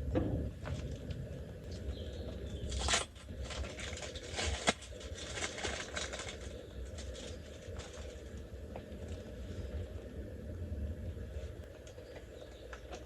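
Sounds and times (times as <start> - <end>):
rustling of handled objects: 0.6 - 9.9.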